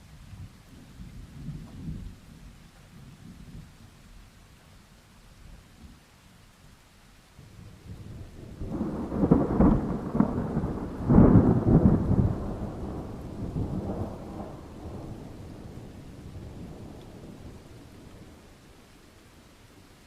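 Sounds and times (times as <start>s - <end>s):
rain hiss: 0.0s - 20.0s
thunder rumbling: 7.5s - 18.6s.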